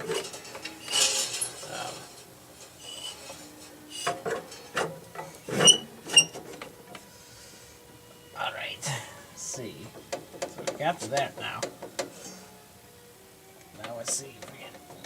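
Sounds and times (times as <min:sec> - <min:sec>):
metal parts clinking and knocking: 0:00.0 - 0:06.7.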